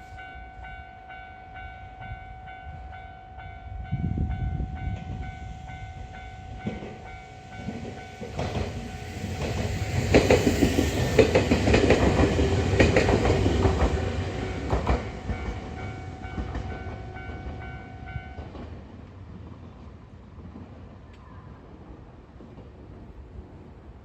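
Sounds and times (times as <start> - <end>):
crossing warning bell ringing: 0.0 - 11.4, 12.2 - 18.6
train wheels clacking over joints: 6.6 - 17.7.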